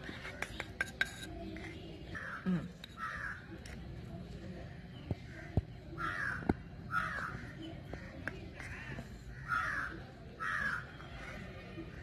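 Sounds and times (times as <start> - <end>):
spoon clicking against clay pot: 0.2 - 1.6
bird harsh calls: 5.9 - 11.4.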